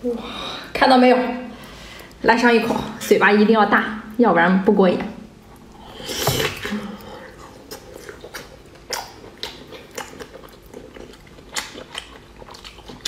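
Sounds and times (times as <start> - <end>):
person chewing wet food: 5.4 - 13.0.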